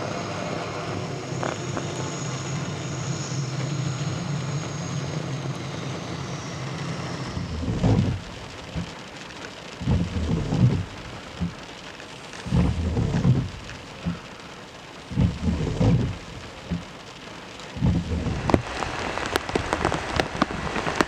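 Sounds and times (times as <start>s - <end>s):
helicopter turbine and rotor: 0.0s - 8.0s
rain: 0.0s - 21.0s
wind buffeting microphone: 7.2s - 9.0s, 9.8s - 11.6s, 12.5s - 14.2s, 15.1s - 16.9s, 17.7s - 21.0s.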